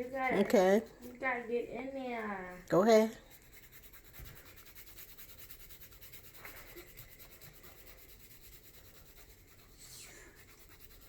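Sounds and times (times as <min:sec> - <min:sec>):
nail file scratching fingernails: 0:03.0 - 0:11.0.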